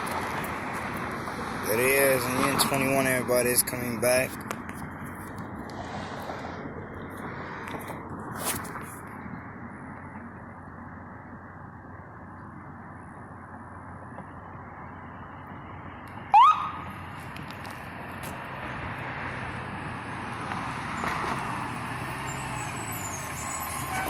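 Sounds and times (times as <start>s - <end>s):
fire engine rumbling: 0.0s - 24.0s
siren chirp: 16.3s - 16.9s.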